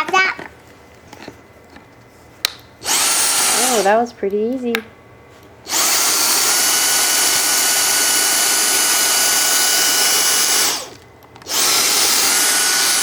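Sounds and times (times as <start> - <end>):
handheld vacuum cleaner whine: 2.8 - 3.9, 5.7 - 13.0.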